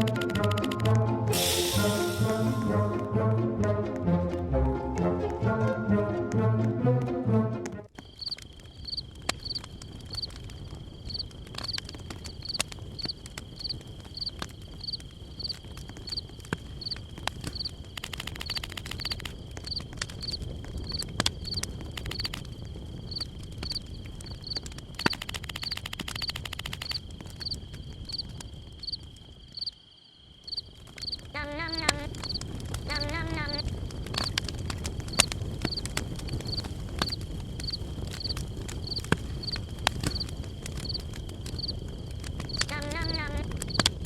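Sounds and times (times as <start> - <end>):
sharp clicks: 0.0 - 1.0, 17.4 - 22.5, 24.5 - 27.6.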